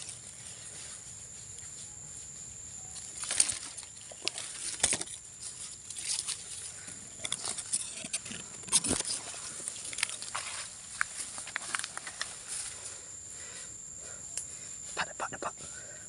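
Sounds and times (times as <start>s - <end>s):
high insect drone: 0.0s - 16.0s
twigs snapping: 3.0s - 5.2s, 5.9s - 12.4s.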